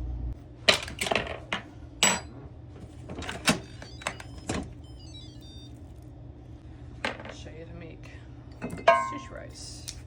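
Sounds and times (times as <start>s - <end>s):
falling run of high tones: 3.6s - 5.7s.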